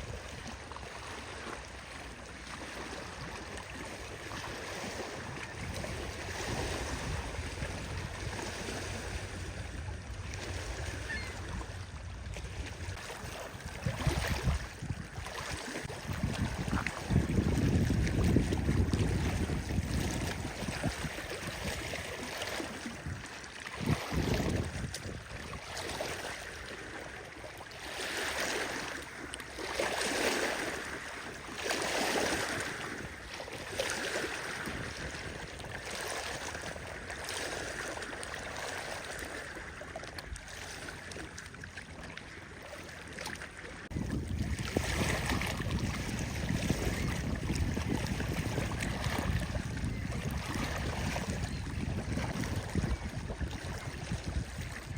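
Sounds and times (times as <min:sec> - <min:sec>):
lake water washing in: 0:00.0 - 0:54.9
wind on microphone: 0:03.0 - 0:26.3, 0:31.8 - 0:36.9, 0:43.9 - 0:54.9.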